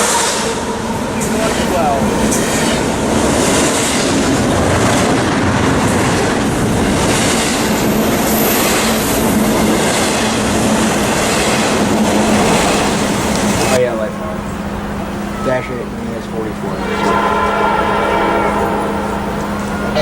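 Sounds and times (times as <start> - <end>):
train wheels clattering: 0.0 - 14.1
high wheel squeal: 12.2 - 13.8, 15.2 - 20.0.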